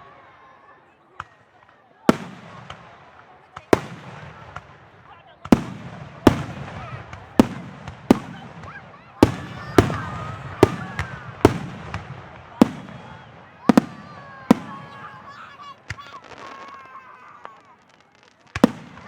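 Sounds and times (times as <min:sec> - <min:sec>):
fireworks bursting with bangs: 0:01.1 - 0:19.0
fireworks crackling: 0:01.2 - 0:19.0.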